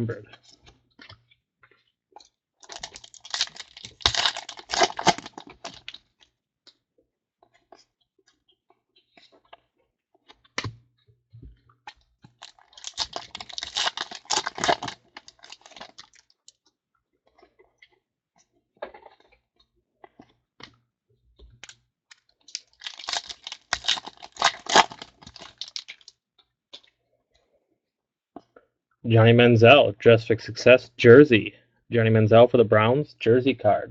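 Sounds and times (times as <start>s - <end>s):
wrapper crinkling and tearing: 2.6s - 6.0s, 12.4s - 16.3s, 22.5s - 26.1s.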